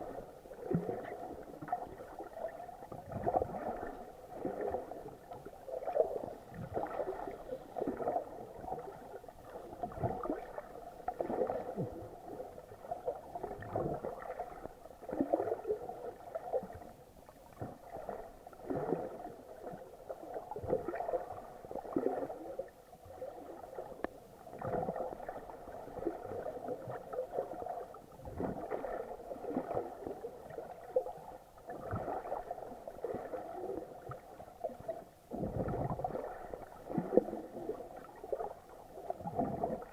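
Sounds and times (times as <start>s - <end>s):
muffled water gurgling and sloshing: 0.0s - 39.9s.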